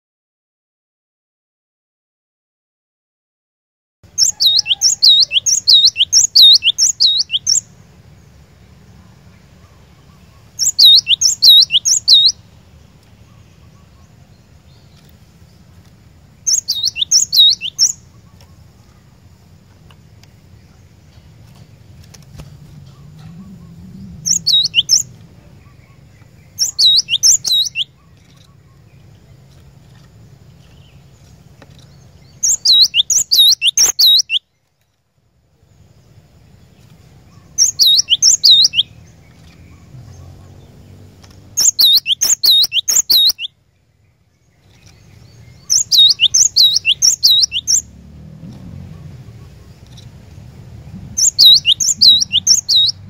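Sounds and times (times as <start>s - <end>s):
faint low hum: 4.2s - 32.6s.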